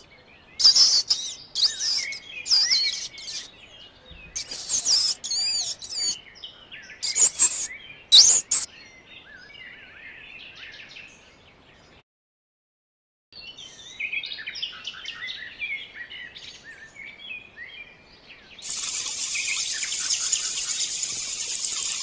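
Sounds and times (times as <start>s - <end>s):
small birds chirping: 0.0s - 12.0s, 13.4s - 22.0s
pulsing insect chorus: 18.6s - 22.0s.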